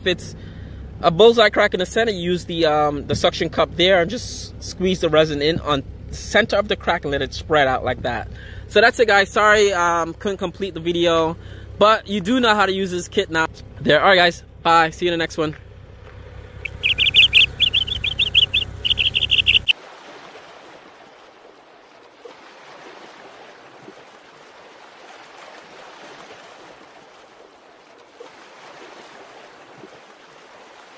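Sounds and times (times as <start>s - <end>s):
songbird chirping: 16.0s - 19.7s.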